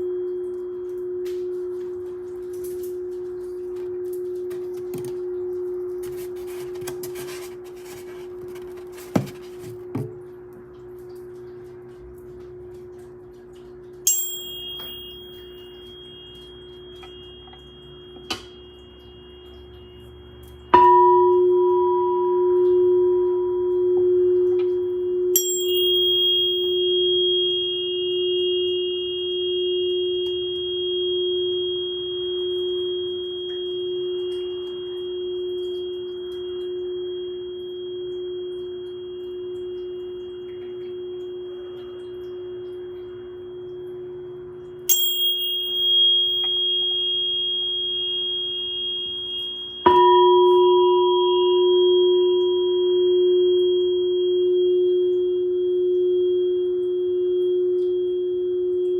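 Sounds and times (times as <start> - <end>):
deep singing bowl tone: 0.0 - 9.6, 13.0 - 58.9
middle ringing tone: 0.0 - 10.3, 13.9 - 58.9
higher ringing tone: 14.0 - 58.9.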